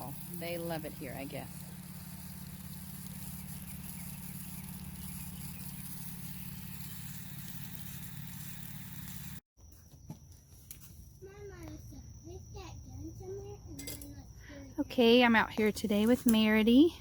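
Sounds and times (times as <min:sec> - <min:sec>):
water spraying from garden hose: 0:00.0 - 0:09.4.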